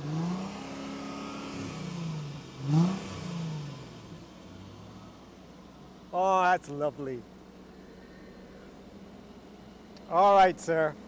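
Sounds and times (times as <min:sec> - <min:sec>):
car engine revving: 0:00.0 - 0:05.1.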